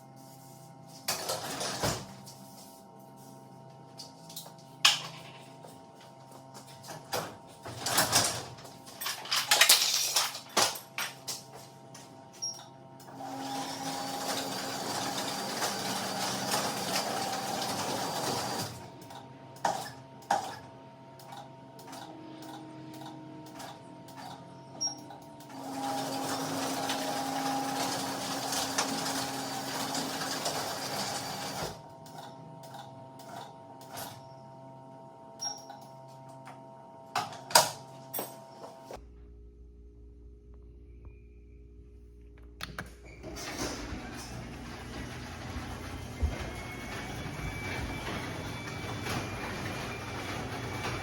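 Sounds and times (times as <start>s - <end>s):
garage door opener motor humming: 11.9s - 38.6s, 42.7s - 51.0s.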